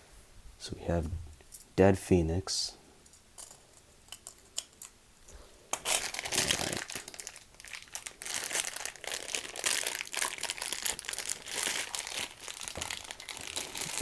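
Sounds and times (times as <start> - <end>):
plastic packaging crinkling: 5.7 - 14.0.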